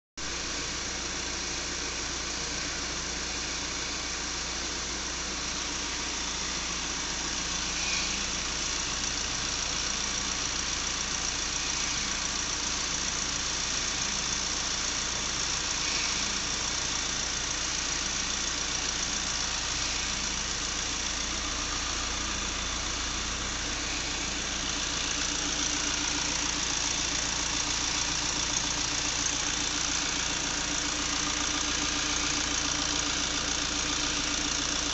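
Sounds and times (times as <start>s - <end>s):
diesel engine idling: 0.3s - 34.9s.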